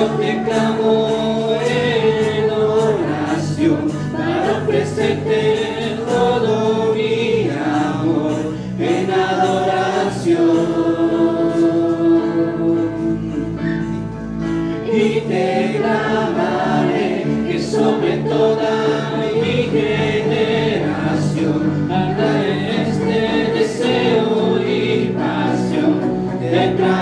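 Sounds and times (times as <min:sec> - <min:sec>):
congregation singing worship song: 0:00.0 - 0:27.0.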